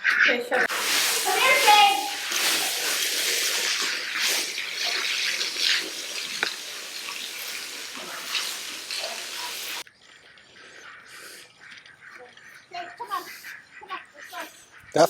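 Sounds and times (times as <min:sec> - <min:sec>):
garden hose spraying water: 0:00.7 - 0:09.8.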